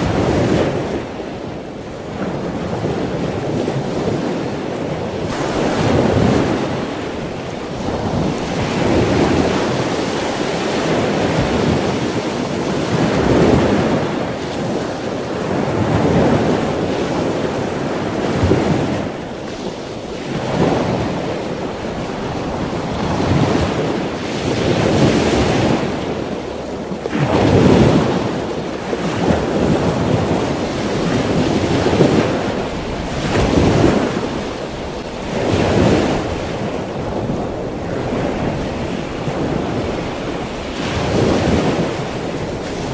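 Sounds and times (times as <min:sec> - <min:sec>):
ocean waves breaking: 0:00.0 - 0:42.9.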